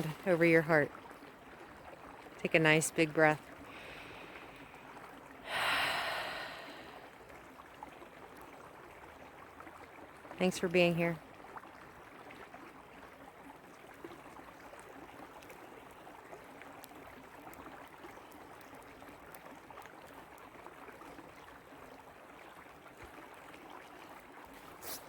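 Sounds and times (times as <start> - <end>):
creek water babbling over rocks: 0.0 - 25.0
small splashes: 0.0 - 25.0.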